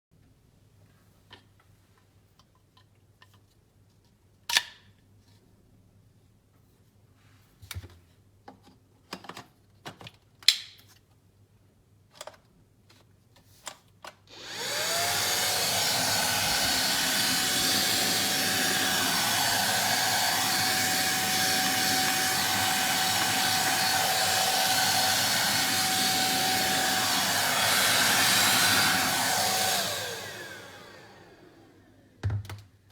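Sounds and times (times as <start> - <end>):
handheld vacuum cleaner whining: 14.3 - 32.2.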